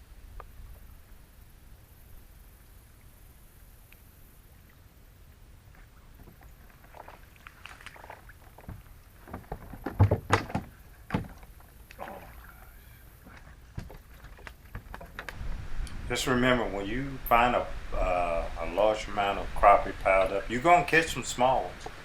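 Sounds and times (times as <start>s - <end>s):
knocks and clatter on kayak hull: 7.9s - 11.8s, 13.2s - 15.4s.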